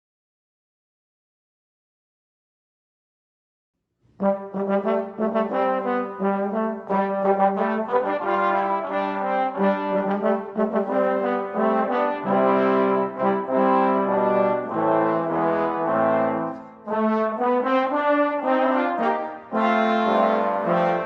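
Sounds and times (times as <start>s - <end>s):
brass ensemble playing chords: 4.2s - 21.0s.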